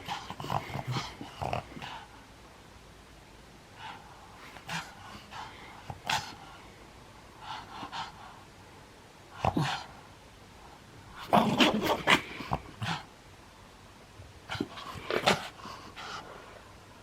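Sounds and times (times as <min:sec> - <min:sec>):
dog breathing and grunting: 0:00.0 - 0:02.2, 0:03.8 - 0:06.7, 0:07.4 - 0:08.4, 0:09.3 - 0:10.1, 0:11.2 - 0:13.1, 0:14.5 - 0:16.6.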